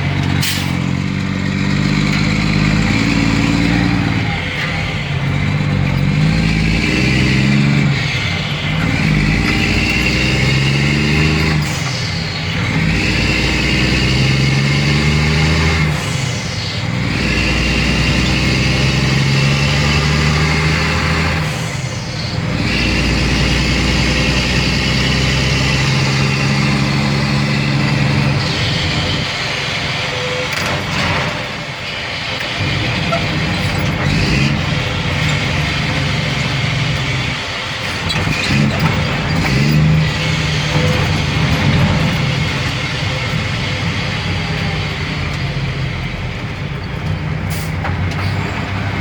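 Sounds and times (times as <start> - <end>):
dump truck diesel engine running: 0.0 - 49.0.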